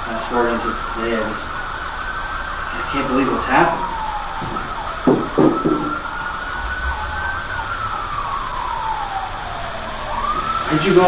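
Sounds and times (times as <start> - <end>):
emergency siren wailing: 0.0 - 11.0
short knocks: 3.9 - 6.2.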